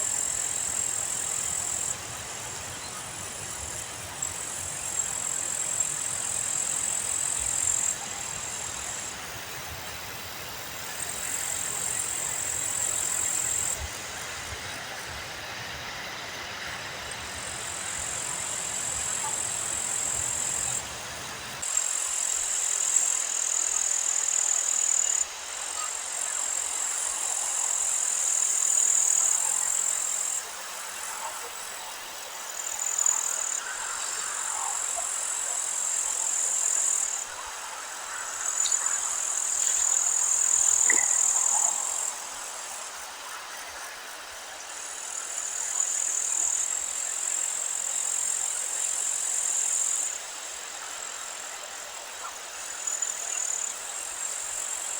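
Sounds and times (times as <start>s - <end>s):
insects trilling: 0.0s - 54.9s.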